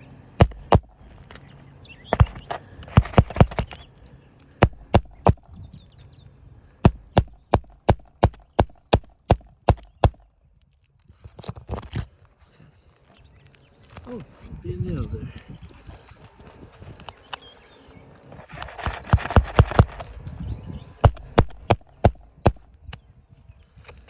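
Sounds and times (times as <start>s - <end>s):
hammer blows on a roof: 0.4s - 1.1s, 2.1s - 3.8s, 4.6s - 5.6s, 6.8s - 10.3s, 18.6s - 20.2s, 21.0s - 22.8s.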